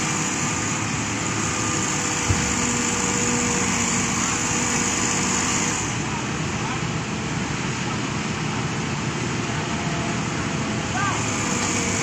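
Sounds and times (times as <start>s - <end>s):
excavator diesel engine running: 0.0s - 12.0s
short low thump: 2.2s - 3.1s.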